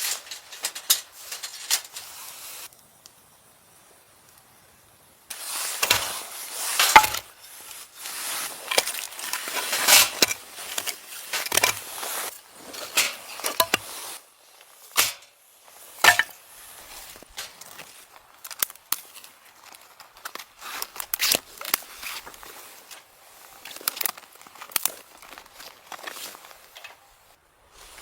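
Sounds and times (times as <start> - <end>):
rustling and crinkling handling noise: 0.0 - 2.7, 5.3 - 28.0
clicks and knocks: 16.0 - 16.3.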